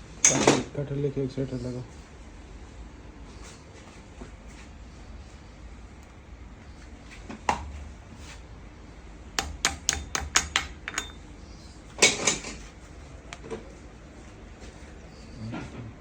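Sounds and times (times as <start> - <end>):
metal tools clinking on workbench: 9.9 - 11.2.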